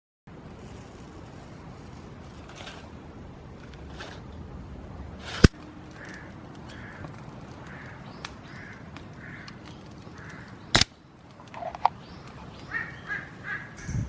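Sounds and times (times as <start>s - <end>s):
crow cawing: 5.9s - 10.7s, 12.7s - 13.9s.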